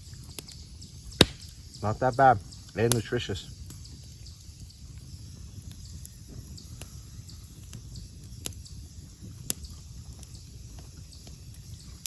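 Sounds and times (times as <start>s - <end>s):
sharp clicks or snaps: 1.2s - 1.5s.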